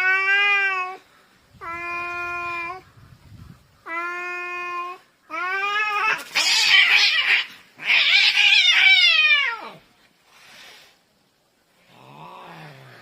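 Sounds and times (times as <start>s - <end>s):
cats yowling in a fight: 0.0s - 2.8s, 3.8s - 9.8s.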